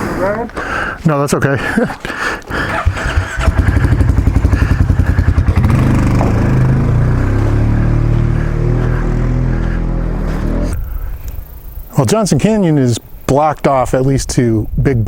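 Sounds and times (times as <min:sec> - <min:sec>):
motorcycle engine pulling away: 0:02.5 - 0:10.8.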